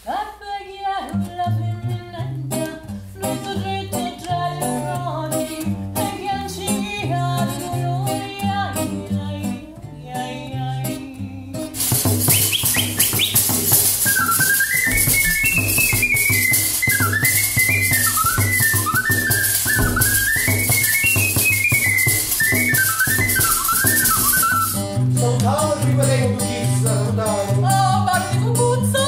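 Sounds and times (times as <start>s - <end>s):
shaker-like rattle: 11.6s - 25.0s
high whistle-like melody: 11.8s - 25.0s.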